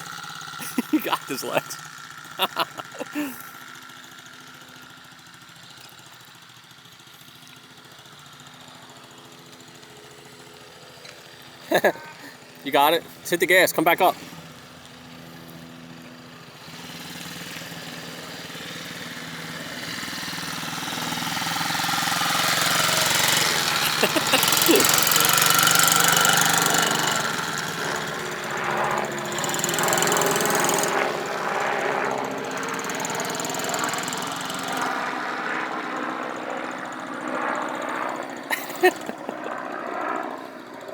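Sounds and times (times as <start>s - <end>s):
pit bike engine running: 16.6s - 31.0s.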